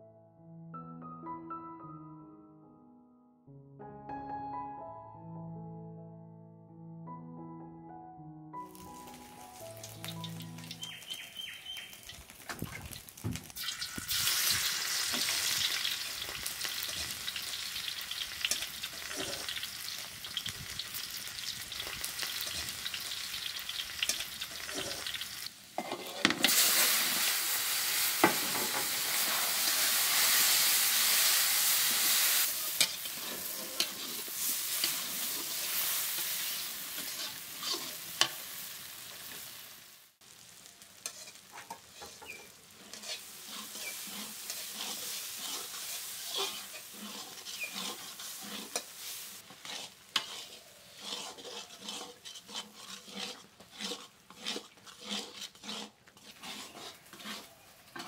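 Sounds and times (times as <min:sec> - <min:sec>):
food sizzling in a wok: 0:08.6 - 0:58.0
metal spatula scraping a wok: 0:14.2 - 0:39.7, 0:41.0 - 0:58.0.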